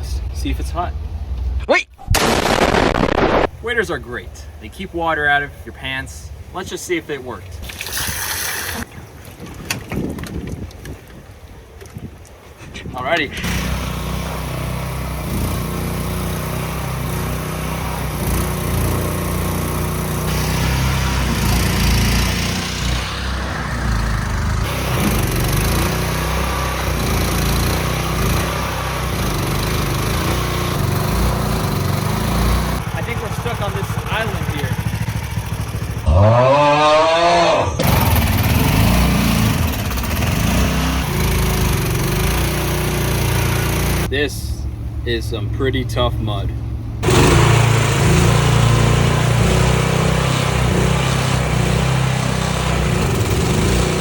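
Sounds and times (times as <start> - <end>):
boat motor running: 13.2 - 54.0.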